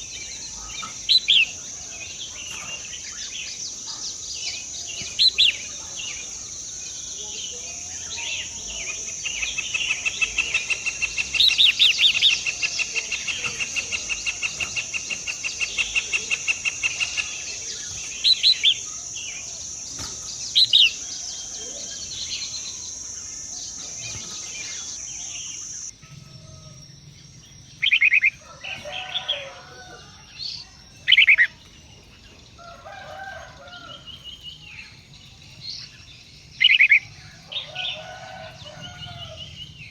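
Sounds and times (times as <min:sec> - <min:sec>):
birds chirping: 0:00.0 - 0:39.9
high-pitched insect drone: 0:00.0 - 0:39.9.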